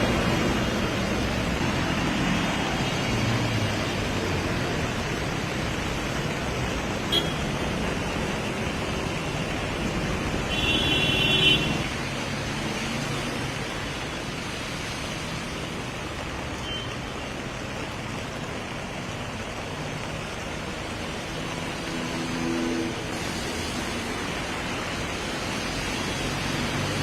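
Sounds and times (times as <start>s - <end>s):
road traffic: 0.0s - 27.0s
vehicle horn: 7.1s - 7.5s, 10.5s - 11.8s.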